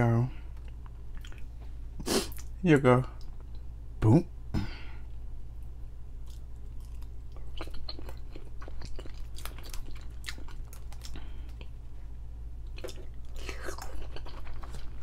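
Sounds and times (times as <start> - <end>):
steady low hum: 0.0 - 15.0
chewing soft food: 0.5 - 1.6, 6.2 - 11.8, 12.6 - 15.0.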